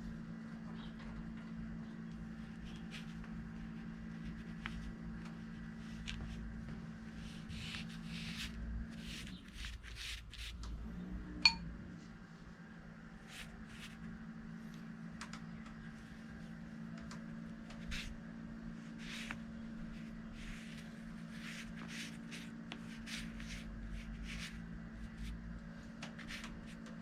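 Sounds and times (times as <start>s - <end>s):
faint hum: 0.0s - 27.0s
brush swishing on paper: 18.9s - 25.4s.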